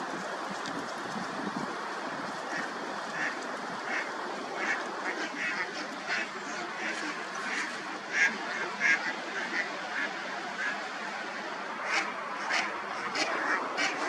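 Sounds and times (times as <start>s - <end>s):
steady background hiss: 0.0s - 14.0s
waterfowl calling: 2.5s - 14.0s.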